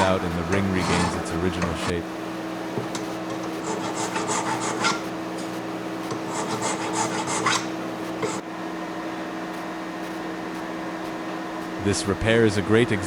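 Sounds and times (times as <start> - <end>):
file rasping on metal: 0.0 - 1.9, 2.9 - 5.5, 6.1 - 8.4
steady low hum: 0.0 - 13.0.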